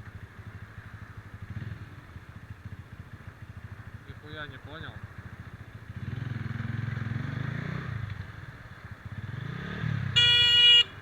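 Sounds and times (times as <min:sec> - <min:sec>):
motorcycle engine pulling away: 0:05.8 - 0:10.2
horn blaring: 0:10.2 - 0:11.0.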